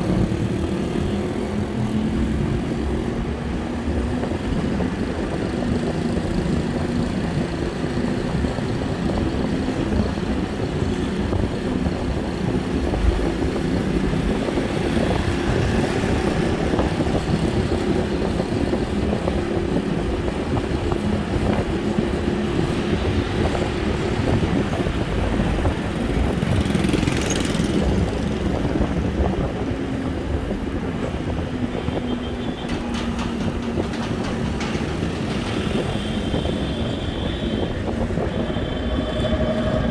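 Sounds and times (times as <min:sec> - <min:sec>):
engine running steadily: 0:00.0 - 0:39.9
road rumble: 0:00.0 - 0:39.9
wind: 0:00.0 - 0:39.9.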